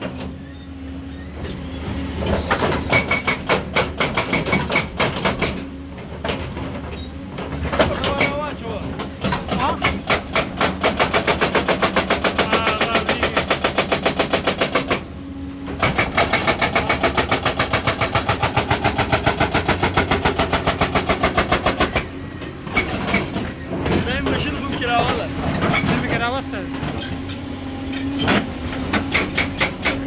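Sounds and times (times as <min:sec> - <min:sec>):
hydraulic breaker hammering: 0:02.2 - 0:06.8, 0:07.4 - 0:30.0
machine engine running: 0:07.8 - 0:30.0.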